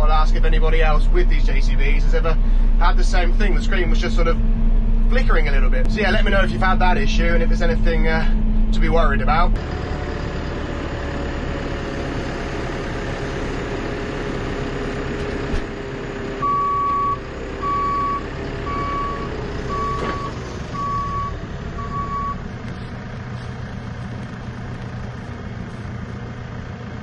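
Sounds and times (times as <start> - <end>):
diesel engine running: 0.0 - 27.0
reversing alarm beeping: 16.4 - 22.4.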